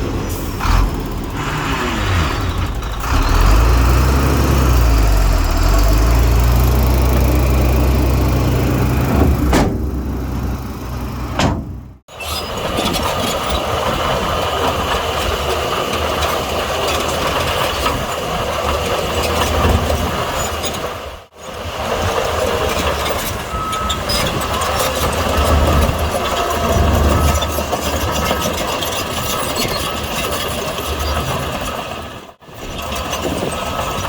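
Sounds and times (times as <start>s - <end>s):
diesel engine humming: 0.0s - 32.4s
rattling engine: 0.0s - 34.0s
sharp knocks: 9.0s - 10.6s, 11.3s - 12.0s.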